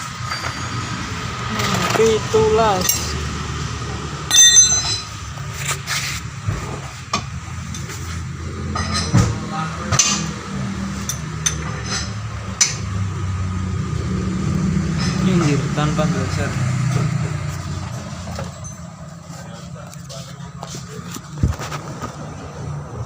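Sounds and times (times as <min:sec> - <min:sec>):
metal clinks and taps: 0:04.3 - 0:05.2.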